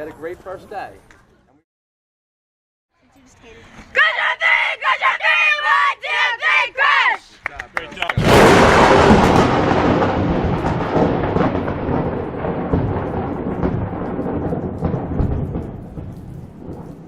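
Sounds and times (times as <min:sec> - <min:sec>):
loud rumble: 0:08.2 - 0:17.0.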